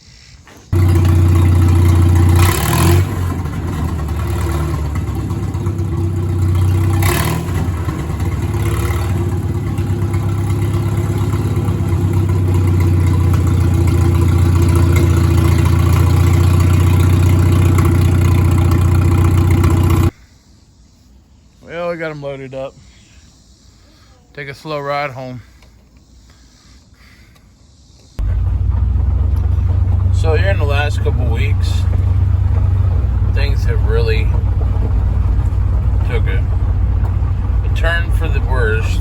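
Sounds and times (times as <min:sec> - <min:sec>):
tractor engine running: 0:00.6 - 0:20.2, 0:28.2 - 0:39.0
short clatters: 0:28.2 - 0:39.0.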